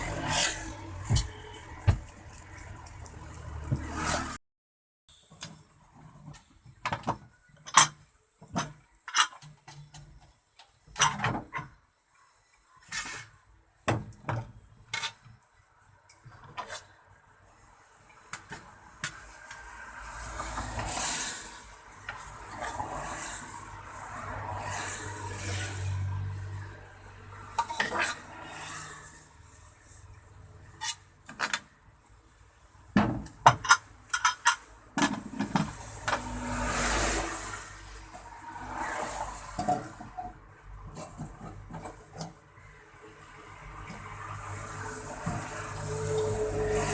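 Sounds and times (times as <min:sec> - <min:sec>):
metal pots and plates clinking: 0:33.5 - 0:35.7.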